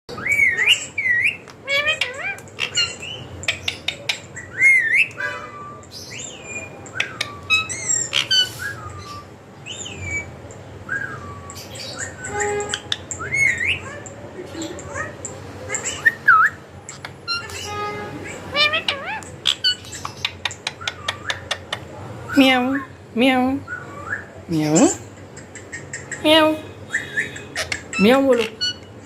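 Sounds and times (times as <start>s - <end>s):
parrot whistles and squawks: 0.1s - 10.3s, 10.9s - 14.0s, 14.9s - 21.7s, 23.6s - 24.4s, 26.9s - 28.9s.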